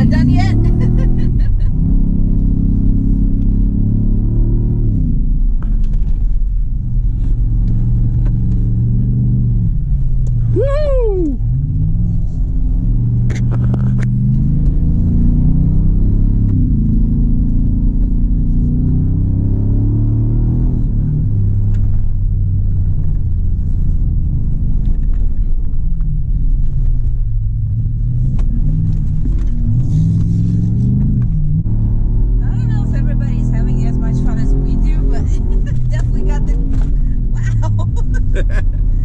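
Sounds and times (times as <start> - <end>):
truck engine revving under load: 0.0 - 5.2, 11.2 - 21.6.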